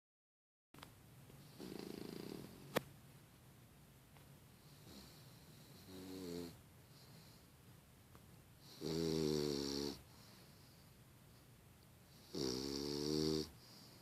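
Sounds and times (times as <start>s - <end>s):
puppy snoring: 1.4s - 2.8s, 4.6s - 7.5s, 8.6s - 10.8s, 12.1s - 14.0s.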